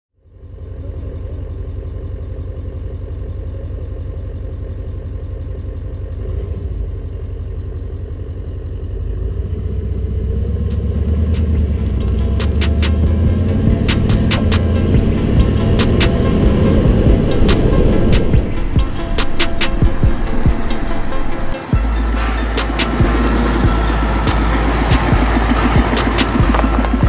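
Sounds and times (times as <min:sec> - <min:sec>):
diesel engine idling: 0:00.2 - 0:27.0
music with ticking beat: 0:10.6 - 0:27.0.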